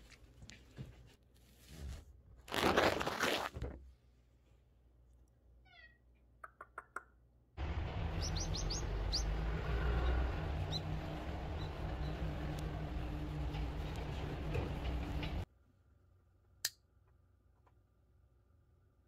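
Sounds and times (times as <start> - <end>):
low outdoor rumble: 7.6 - 16.0
small birds chirping: 7.9 - 12.3.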